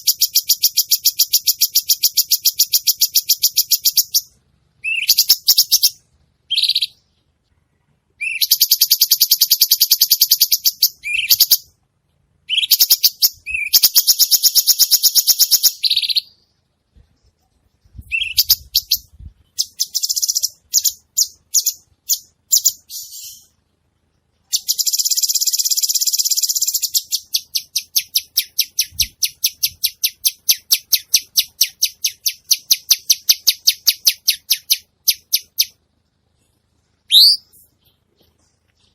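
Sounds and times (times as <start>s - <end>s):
sharp bird chirps: 0.0s - 7.2s, 8.2s - 11.7s, 12.4s - 16.6s, 18.0s - 23.6s, 24.5s - 35.8s, 37.0s - 38.9s
bird trilled chatter: 24.6s - 35.8s.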